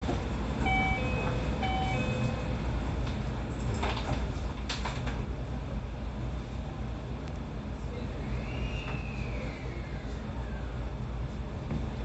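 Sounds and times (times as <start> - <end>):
low hum of stopped train: 0.0 - 12.0
train door chime: 0.6 - 2.6.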